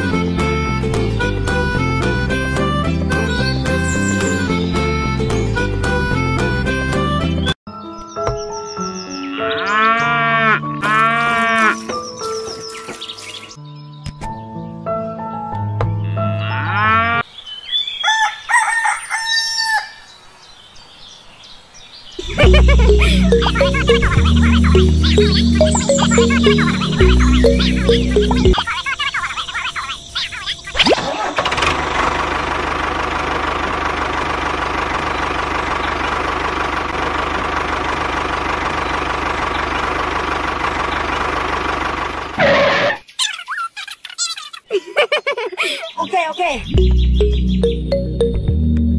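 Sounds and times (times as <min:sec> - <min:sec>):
rooster crowing: 0:18.0 - 0:20.1
tractor engine running: 0:22.2 - 0:28.7, 0:31.0 - 0:43.0.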